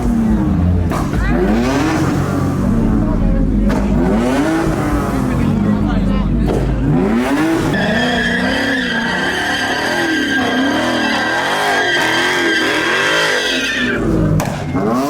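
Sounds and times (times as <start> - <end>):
car engine revving: 0.0 - 15.0
car tires squealing: 6.8 - 15.0.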